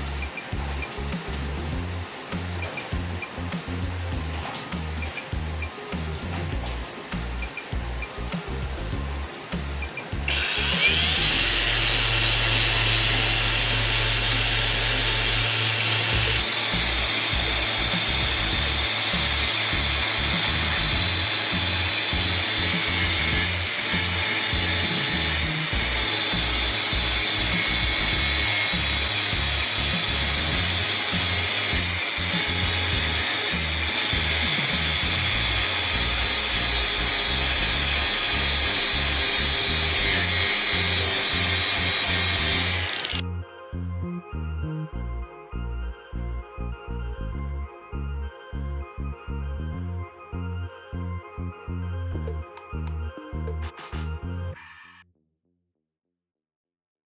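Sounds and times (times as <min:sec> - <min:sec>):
background music: 0:00.0 - 0:55.0
electric power tool whining: 0:09.6 - 0:43.2.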